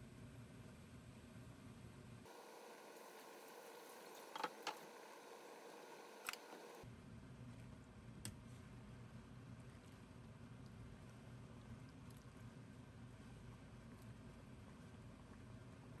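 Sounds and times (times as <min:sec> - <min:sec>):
short light clicks: 0:06.2 - 0:06.8.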